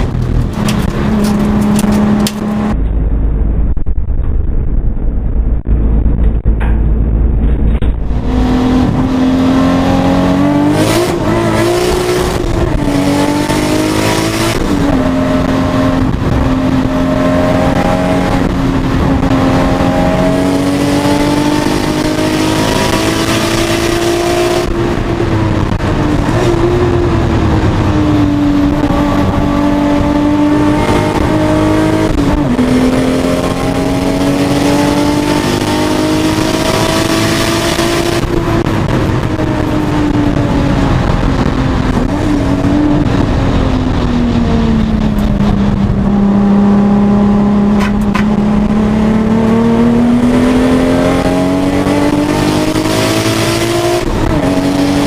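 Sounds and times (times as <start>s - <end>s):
car engine revving: 0.0s - 55.0s
road and wind noise: 0.0s - 55.0s.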